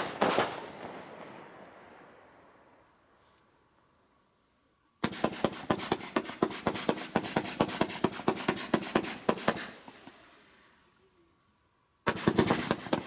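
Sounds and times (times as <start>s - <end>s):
firework barrage bangs: 0.0s - 2.2s, 5.0s - 9.8s, 12.1s - 13.0s.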